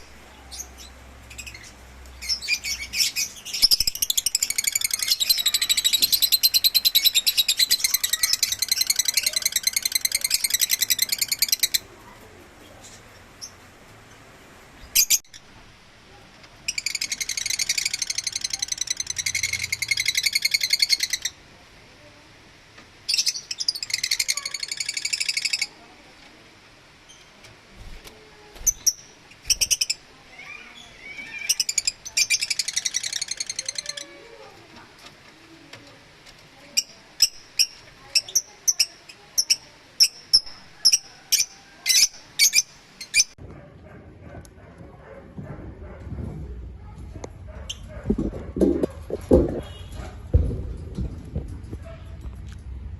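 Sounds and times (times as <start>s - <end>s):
lovebirds chirping: 0.0s - 13.7s, 14.7s - 15.5s, 28.6s - 34.4s, 36.6s - 43.4s, 47.5s - 50.1s.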